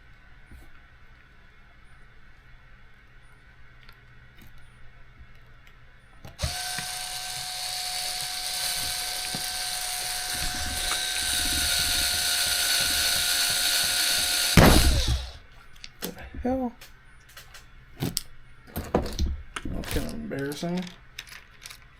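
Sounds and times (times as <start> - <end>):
power driver motor running: 6.4 - 15.4.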